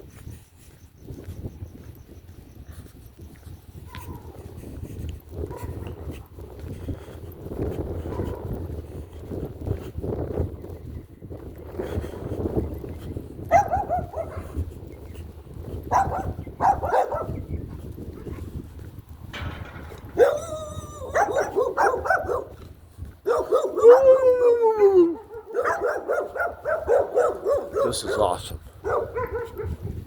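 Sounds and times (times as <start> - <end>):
dog barking: 3.9 - 4.4, 5.4 - 6.0, 8.1 - 8.6, 13.5 - 14.6, 15.9 - 17.4, 20.2 - 22.6, 23.2 - 24.2, 25.2 - 29.8
dog howling: 20.2 - 22.4, 23.3 - 26.3.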